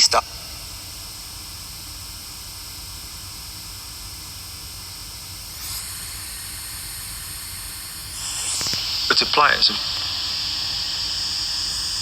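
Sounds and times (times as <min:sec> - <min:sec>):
static hiss: 0:06.8 - 0:12.0.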